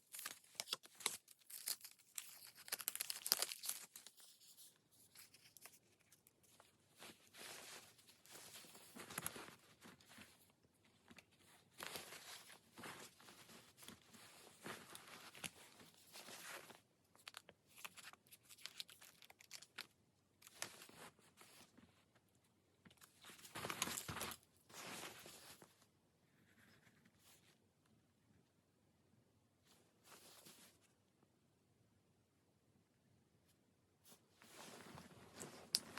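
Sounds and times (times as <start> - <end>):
paper rustling and crinkling: 0.0 - 22.0, 22.9 - 25.8, 34.1 - 35.9.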